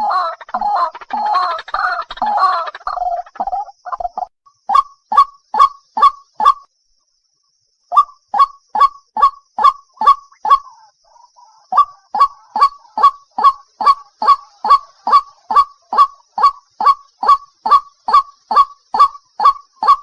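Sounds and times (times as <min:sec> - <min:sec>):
waterhen calling harsh notes: 0:00.0 - 0:06.6, 0:07.9 - 0:20.0.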